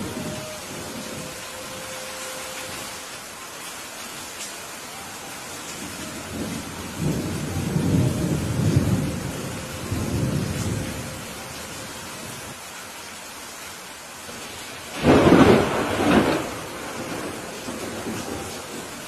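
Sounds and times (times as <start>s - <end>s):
steady rain falling: 0.0s - 19.0s
thunder rumbling: 5.8s - 12.5s, 14.9s - 19.0s.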